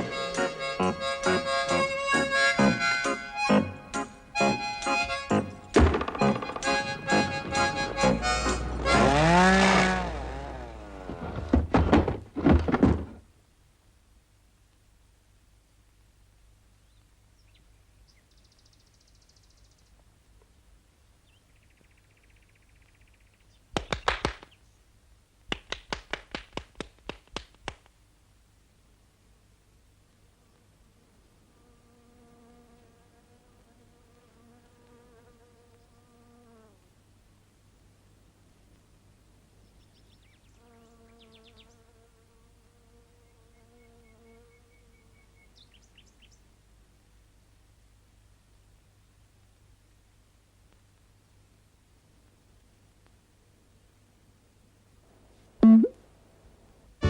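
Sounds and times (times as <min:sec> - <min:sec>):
flying insect buzzing: 0:04.4 - 0:11.5, 0:30.4 - 0:36.8
faint bird chirps: 0:16.8 - 0:20.0, 0:21.2 - 0:23.7.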